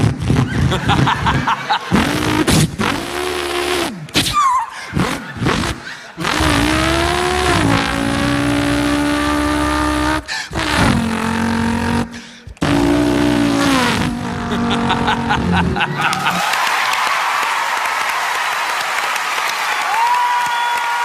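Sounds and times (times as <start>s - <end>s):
man imitating race car engine: 0.0s - 16.4s.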